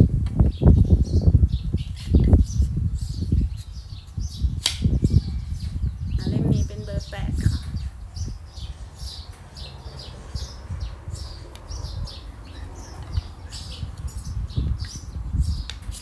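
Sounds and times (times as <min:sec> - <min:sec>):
steady low rumble: 0:00.0 - 0:15.8
small birds chirping: 0:00.0 - 0:16.0.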